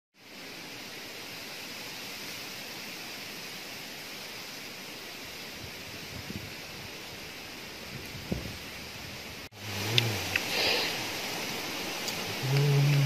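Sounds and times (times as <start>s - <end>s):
steady outdoor hiss: 0.2s - 13.0s.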